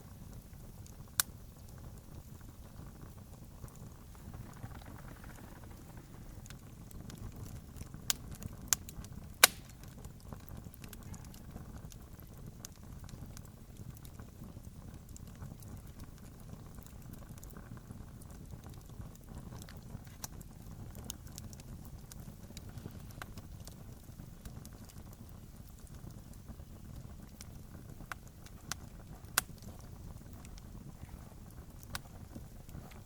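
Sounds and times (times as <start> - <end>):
campfire crackling: 0.0 - 33.0
loud pops of fire: 0.0 - 33.0
low rumble: 3.2 - 7.6.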